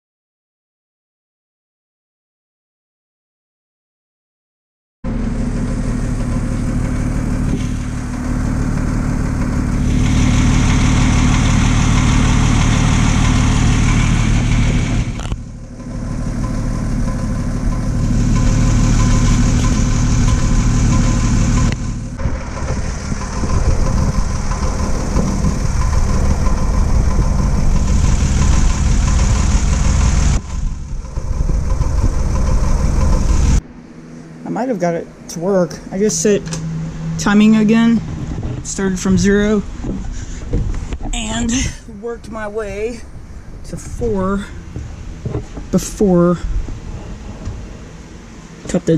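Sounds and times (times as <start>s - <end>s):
car engine idling: 5.1s - 48.9s.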